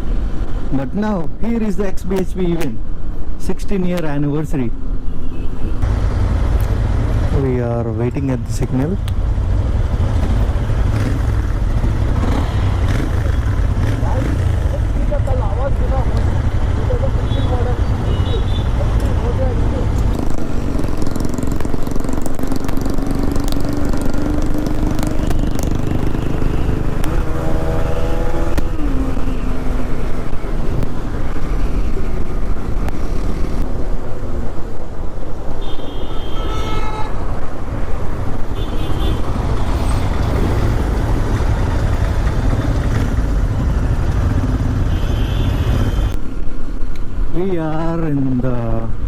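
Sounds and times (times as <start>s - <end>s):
traffic engines rumbling: 0.0s - 49.0s
vehicle horns honking: 5.1s - 5.8s, 17.1s - 18.8s, 35.6s - 37.3s, 38.5s - 39.8s, 44.7s - 46.2s.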